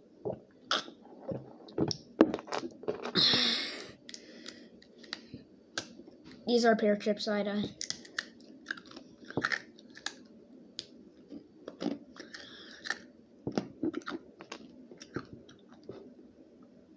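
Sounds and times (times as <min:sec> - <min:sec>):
chewing crisp chips: 0:07.8 - 0:10.2, 0:11.7 - 0:16.0.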